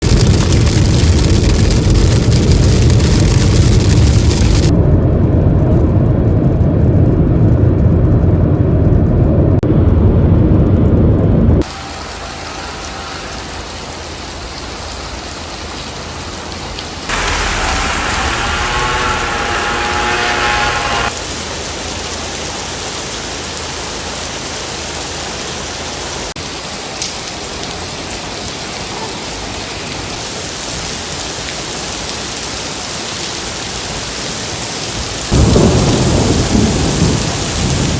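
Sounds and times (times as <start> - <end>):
rain hissing: 0.0 - 4.7, 11.6 - 37.9
loud deep rumble: 0.0 - 14.7, 17.0 - 21.2, 35.3 - 37.9
wavering pitched sound: 17.1 - 21.1.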